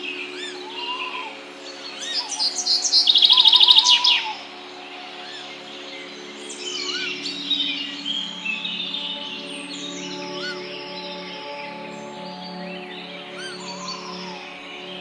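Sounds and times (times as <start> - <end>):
birds chirping and whistling: 0.0 - 15.0.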